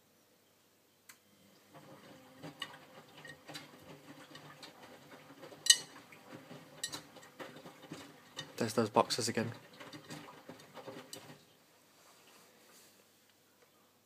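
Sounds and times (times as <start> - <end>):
washing machine motor humming: 1.4 - 11.6
laundry tumbling: 1.6 - 12.4.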